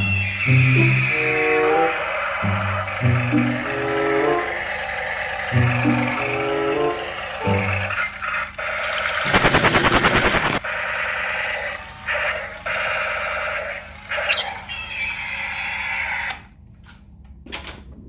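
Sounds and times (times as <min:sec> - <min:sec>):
toy train motor and gears: 0:00.0 - 0:09.5, 0:10.1 - 0:14.5
loud fast rattle: 0:08.8 - 0:10.6.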